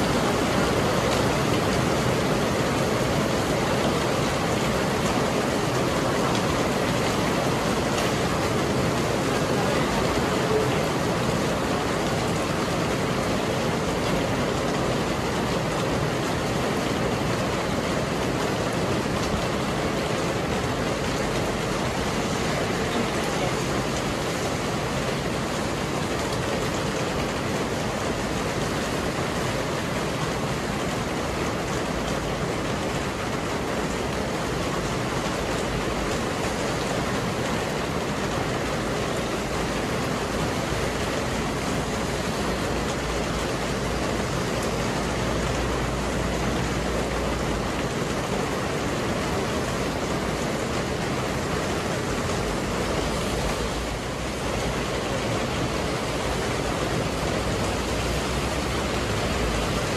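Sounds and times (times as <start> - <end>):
heavy rain on pavement: 0.0 - 59.9.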